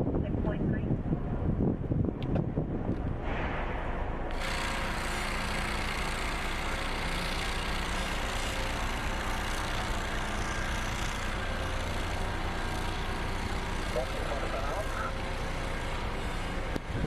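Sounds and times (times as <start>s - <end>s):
heavy vehicle engine running: 3.9s - 17.0s.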